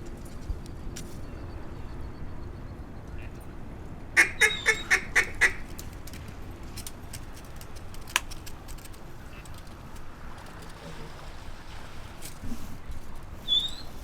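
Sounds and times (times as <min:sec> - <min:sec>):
faint outdoor background: 0:00.0 - 0:14.0
duck call quacking: 0:04.2 - 0:05.6.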